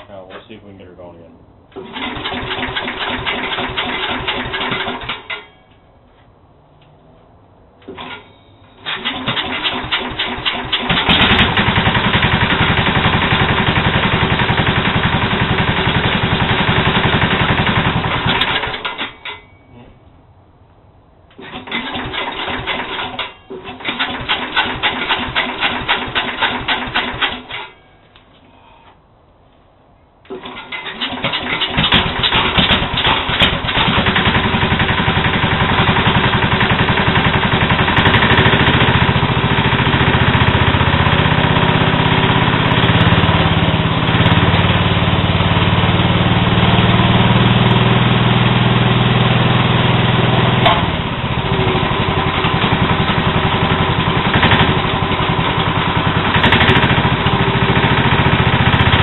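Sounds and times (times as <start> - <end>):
small engine running with a knock: 10.9 - 18.7, 31.7 - 43.5, 50.3 - 51.1, 52.4 - 59.0.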